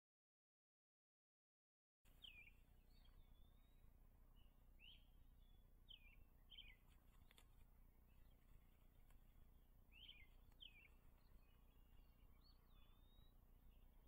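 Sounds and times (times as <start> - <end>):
faint bird chirps: 2.1 - 14.0
low steady background noise: 2.1 - 14.0
faint click: 6.8 - 7.8, 8.4 - 9.3, 10.2 - 11.1.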